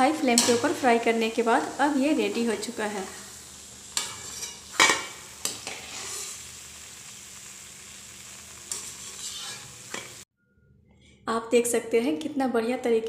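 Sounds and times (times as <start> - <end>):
food sizzling in oil: 0.0 - 10.3
steel spoon scraping a pan: 0.3 - 0.8, 2.2 - 6.5, 8.5 - 10.2.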